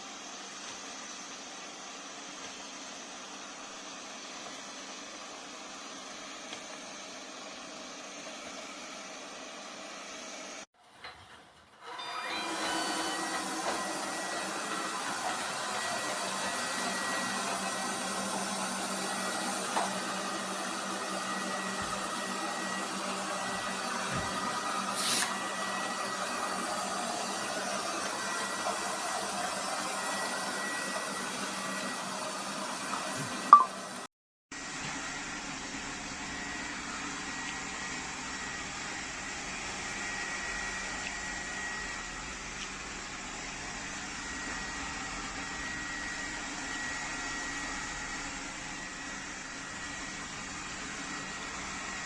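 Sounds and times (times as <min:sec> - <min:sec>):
machine whirring hiss: 0:16.4 - 0:26.4.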